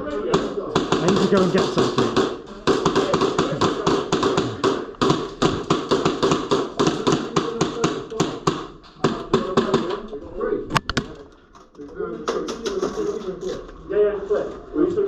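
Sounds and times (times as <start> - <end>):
rapid airsoft gunfire: 0.2 - 10.0.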